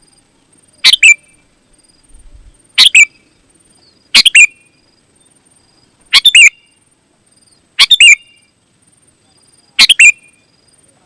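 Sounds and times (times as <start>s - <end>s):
bulbul bubbly calls: 0.8s - 1.4s, 2.8s - 3.1s, 4.1s - 4.6s, 6.1s - 6.6s, 7.8s - 8.4s, 9.8s - 10.3s.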